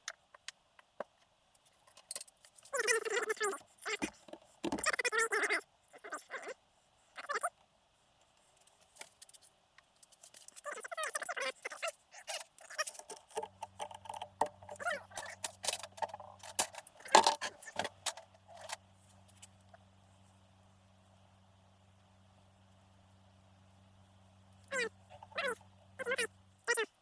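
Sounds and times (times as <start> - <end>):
metal parts clinking and rattling: 12.3 - 18.8.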